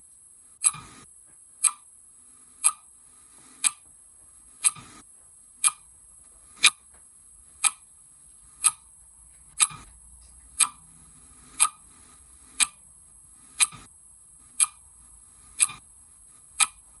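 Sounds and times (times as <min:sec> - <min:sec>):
faint high hiss: 0:00.0 - 0:17.0
clock ticking: 0:00.6 - 0:01.0, 0:01.6 - 0:01.9, 0:02.6 - 0:02.9, 0:03.6 - 0:03.9, 0:04.6 - 0:05.0, 0:05.6 - 0:05.9, 0:06.6 - 0:06.8, 0:07.6 - 0:07.9, 0:08.6 - 0:08.9, 0:09.6 - 0:10.9, 0:11.5 - 0:12.8, 0:13.5 - 0:13.9, 0:14.6 - 0:14.9, 0:15.6 - 0:15.8, 0:16.5 - 0:17.0.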